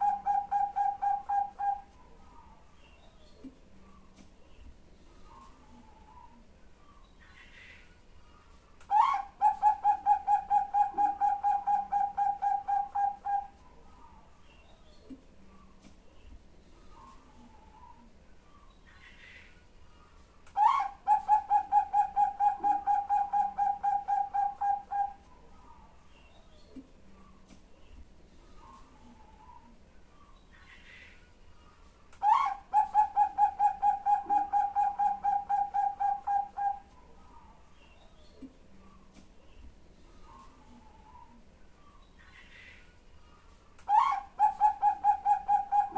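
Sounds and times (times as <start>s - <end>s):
dove cooing: 0.0s - 1.9s, 8.9s - 13.6s, 20.6s - 25.2s, 32.2s - 36.9s, 43.9s - 45.9s.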